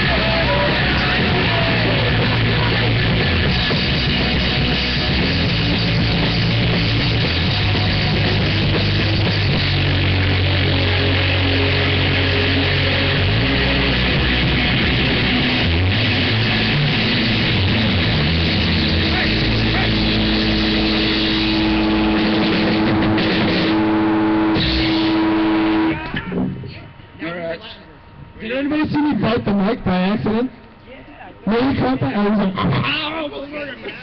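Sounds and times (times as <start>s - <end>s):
live rock band playing: 0.0s - 26.5s.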